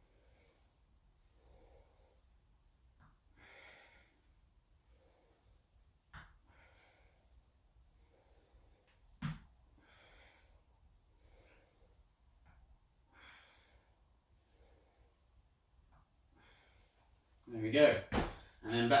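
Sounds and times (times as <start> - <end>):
faint breathing: 0.0 - 18.7
heel tapping the floor: 18.1 - 18.4.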